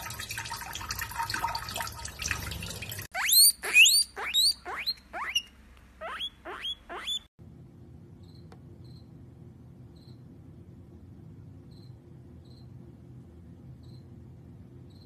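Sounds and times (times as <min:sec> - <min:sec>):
faint low hum: 0:00.4 - 0:15.0
guinea pig wheeking: 0:03.1 - 0:07.3.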